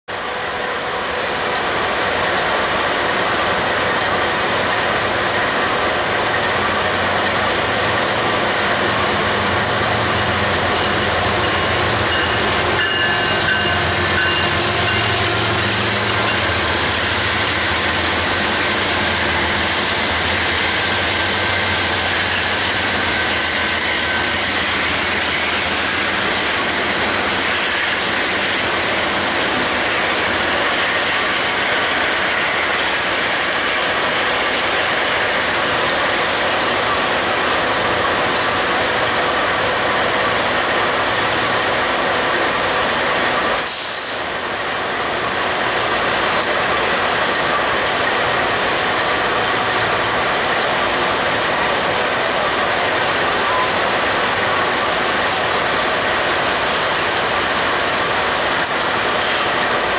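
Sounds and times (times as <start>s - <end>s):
freight train rumbling past: 0.1s - 59.9s
brief high tone: 53.4s - 53.8s.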